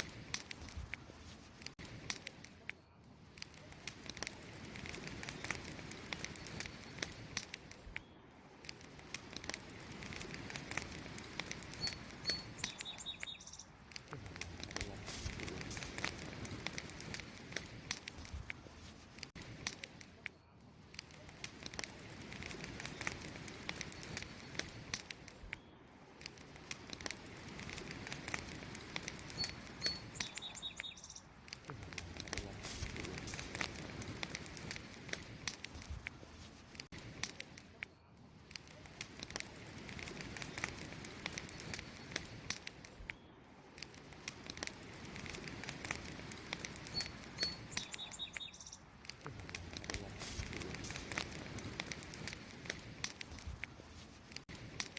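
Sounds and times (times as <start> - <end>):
wood fire crackling and popping: 0.0 - 54.9
short high bird chirp: 11.8 - 13.7, 29.4 - 31.3, 46.9 - 48.8.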